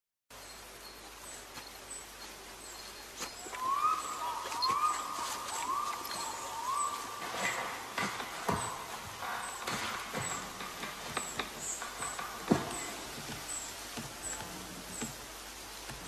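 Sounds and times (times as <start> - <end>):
soft steady hiss: 0.3 - 16.0
rising bird call: 3.4 - 7.9.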